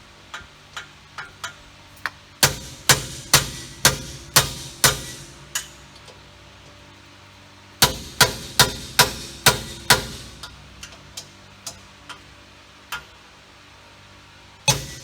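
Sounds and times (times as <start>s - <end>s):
hammer blows on steel ringing: 14.7s - 15.0s.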